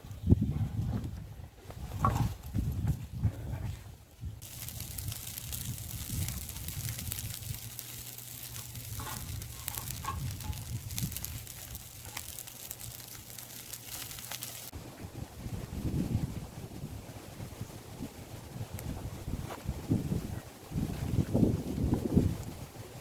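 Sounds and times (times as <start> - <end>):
campfire crackling: 4.4 - 14.8.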